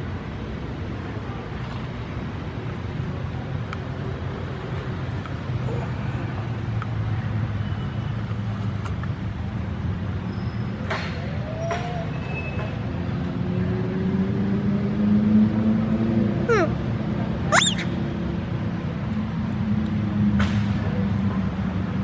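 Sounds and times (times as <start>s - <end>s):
faint squeal: 17.5s - 17.9s.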